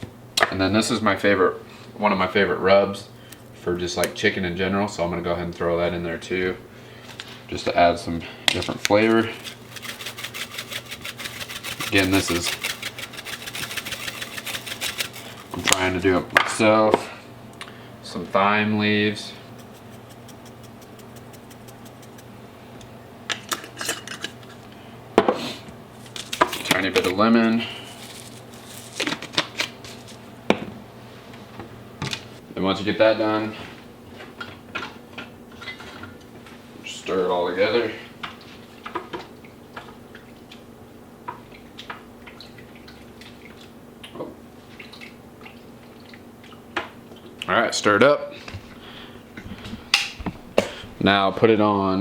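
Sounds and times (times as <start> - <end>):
utensil clinking and scraping: 8.9 - 16.0, 19.5 - 22.4, 26.0 - 30.2.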